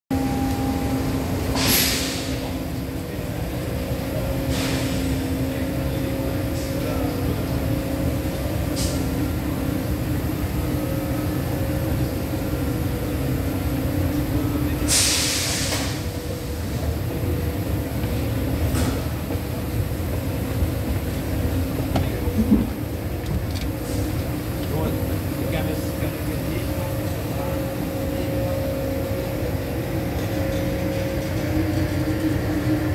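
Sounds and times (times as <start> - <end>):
standing train rumble and hum: 0.1 - 32.9
compressed air hisses: 14.9 - 15.9.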